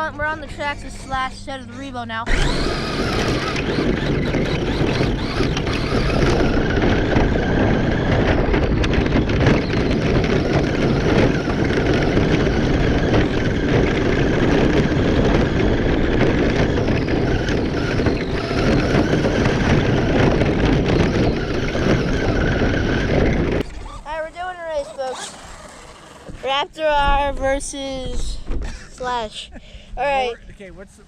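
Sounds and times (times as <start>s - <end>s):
electric motor whine: 2.2s - 26.5s
tyres rumbling on ground: 2.3s - 26.8s.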